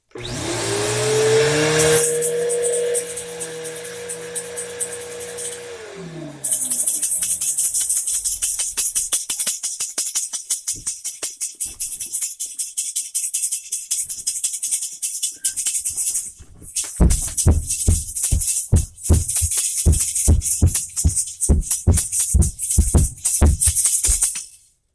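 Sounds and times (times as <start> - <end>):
shaker rattling rhythmically: 6.4 - 24.7.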